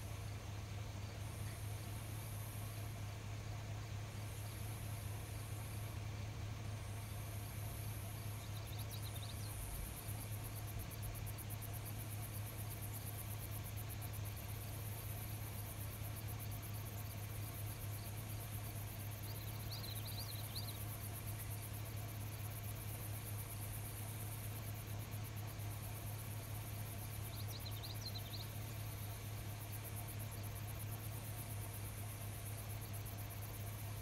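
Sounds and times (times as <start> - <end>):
night insects chirring: 0.0 - 34.0
faint chirps: 6.9 - 34.0.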